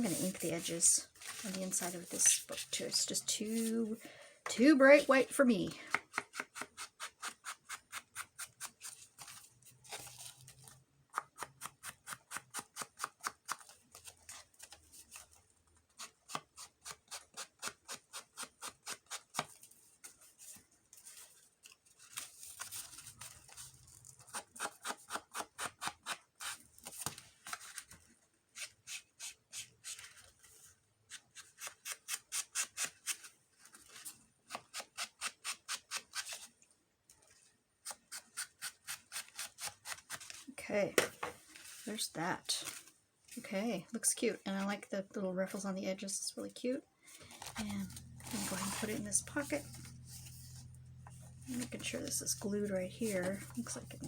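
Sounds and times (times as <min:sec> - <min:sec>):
ink tool scrubbing paper: 0:00.0 - 0:04.0, 0:47.5 - 0:54.0.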